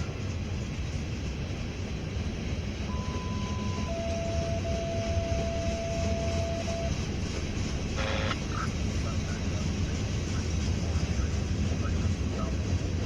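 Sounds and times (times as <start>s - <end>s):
freight train wheels rumbling on rail: 0.0s - 13.0s
thin steady tone: 2.9s - 7.0s.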